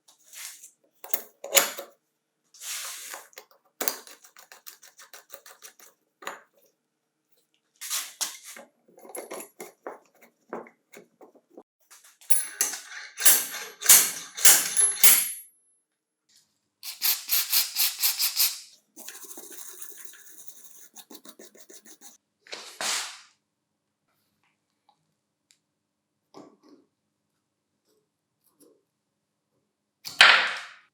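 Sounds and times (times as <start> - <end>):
rapid rubbing strokes: 17.0 - 22.2.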